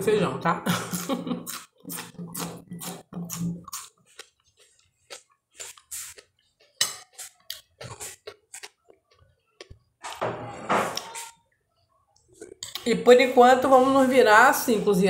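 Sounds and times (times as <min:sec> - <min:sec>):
wet chewing clicks and smacks: 0:01.4 - 0:09.9.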